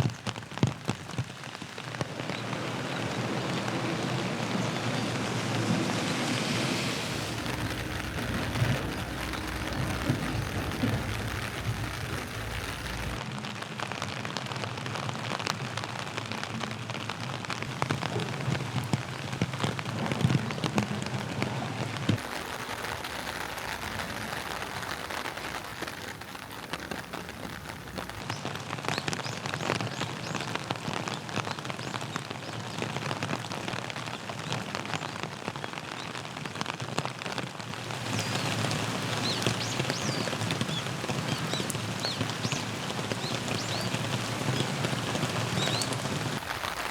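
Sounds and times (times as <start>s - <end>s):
raindrops spattering: 0.0s - 46.9s
steady rain falling: 0.0s - 46.9s
low rumble: 3.4s - 13.2s.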